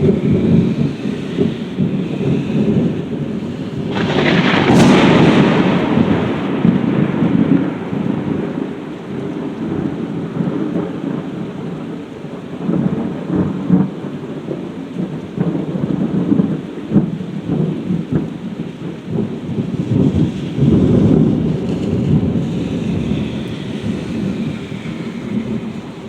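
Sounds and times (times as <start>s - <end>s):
heavy rain: 0.0s - 26.0s
thunder rumbling: 0.0s - 26.0s
sharp thunder cracks: 1.8s - 11.5s, 15.3s - 26.0s.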